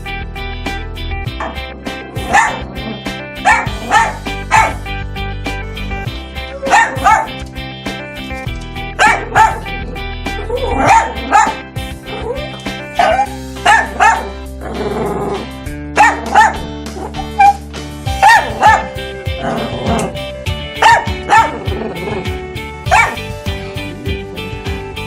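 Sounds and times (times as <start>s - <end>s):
background music: 0.0s - 25.0s
dog barking: 2.2s - 2.7s, 3.4s - 4.8s, 6.6s - 7.4s, 9.0s - 9.8s, 10.6s - 11.6s, 13.0s - 14.4s, 16.0s - 17.6s, 18.2s - 18.9s, 20.8s - 21.6s, 22.9s - 23.2s.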